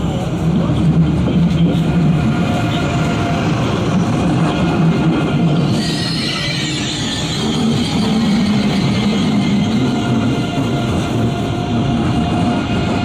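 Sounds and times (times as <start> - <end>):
train wheels rumbling on rails: 0.0 - 13.0
high wheel squeal: 5.6 - 10.4.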